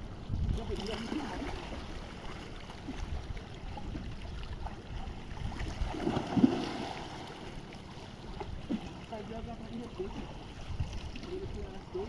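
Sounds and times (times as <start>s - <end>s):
wind on microphone: 0.0s - 2.2s, 2.8s - 7.1s, 9.5s - 12.0s
seawater sloshing and splashing: 0.0s - 12.0s.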